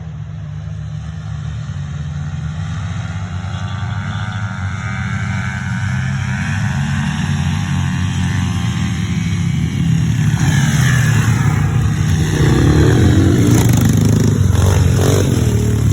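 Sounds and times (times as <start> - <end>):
small motorcycle engine revving: 2.4 - 15.9.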